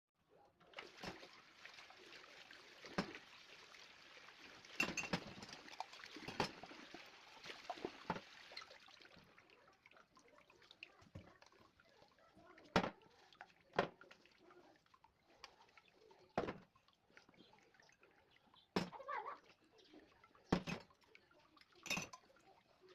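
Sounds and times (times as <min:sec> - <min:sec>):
tap water running: 0:00.7 - 0:22.9
dishes clinking and clattering: 0:04.7 - 0:06.7, 0:12.7 - 0:13.0, 0:18.8 - 0:19.0, 0:20.5 - 0:21.0, 0:21.8 - 0:22.4.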